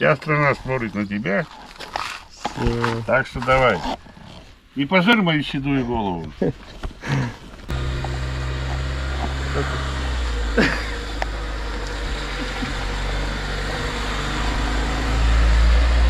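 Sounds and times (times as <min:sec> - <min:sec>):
car engine idling: 0:07.7 - 0:16.0.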